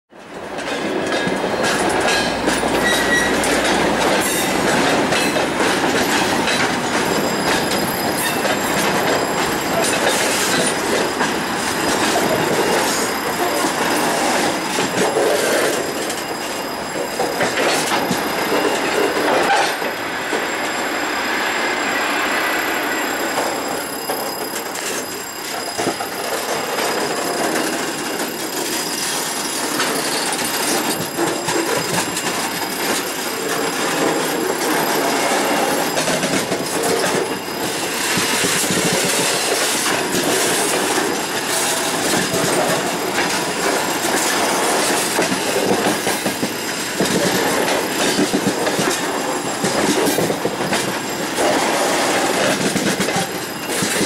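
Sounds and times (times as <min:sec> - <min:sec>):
steel wheels clattering over rail joints: 0:00.2 - 0:20.9, 0:22.6 - 0:54.0
wheel squeal on rails: 0:00.5 - 0:54.0.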